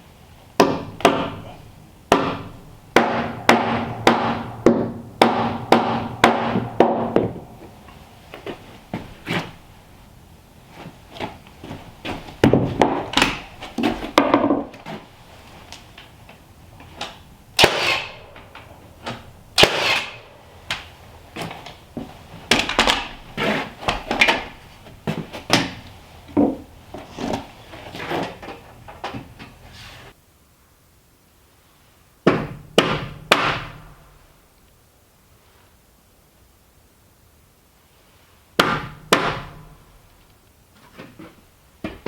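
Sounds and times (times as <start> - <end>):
wooden knocks and clunks: 2.1 - 7.8, 10.8 - 15.1, 20.7 - 27.5, 40.8 - 42.0.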